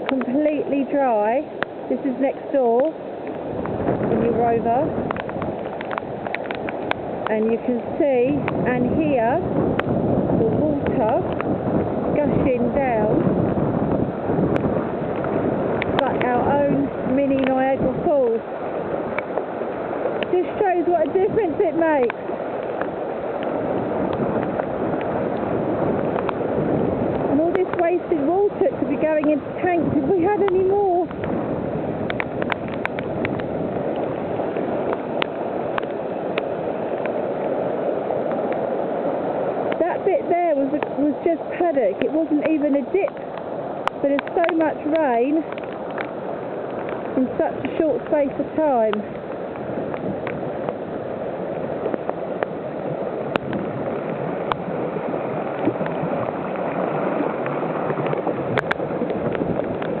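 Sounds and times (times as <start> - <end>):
rainwater gushing: 0.0 - 60.0
runoff water rushing: 0.0 - 60.0.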